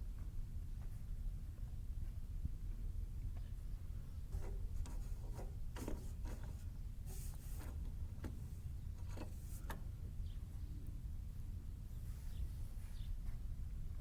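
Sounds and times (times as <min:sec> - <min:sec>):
hissy scrape: 0:04.4 - 0:07.9.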